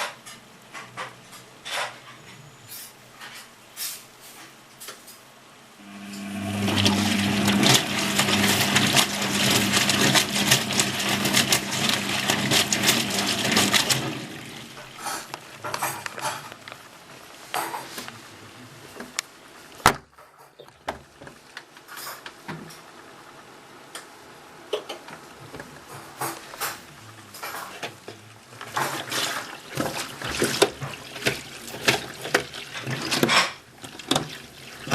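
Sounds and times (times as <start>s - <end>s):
electrical hum: 5.6s - 17.4s
water rushing through washing machine: 5.8s - 17.9s, 24.9s - 34.9s.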